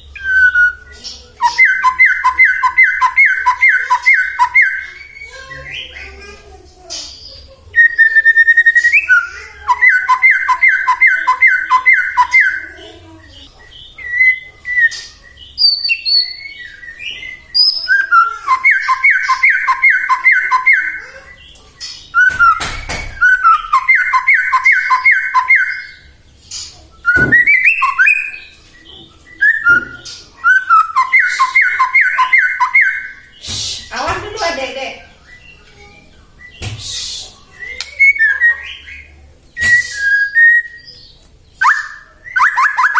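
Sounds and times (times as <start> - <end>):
songbird singing: 0.0 - 42.9
bird whistles: 0.1 - 5.3, 7.8 - 12.7, 14.0 - 21.1, 22.2 - 26.1, 27.0 - 28.5, 29.3 - 33.9, 36.4 - 41.0, 41.6 - 42.9
sharp knock: 27.2 - 27.6.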